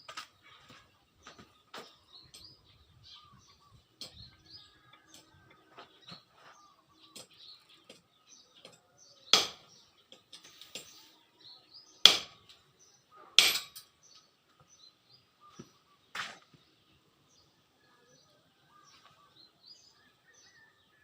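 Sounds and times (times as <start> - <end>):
birds chirping: 0.0 - 21.0
hammer striking metal: 9.3 - 9.7, 12.1 - 12.5, 13.4 - 13.9.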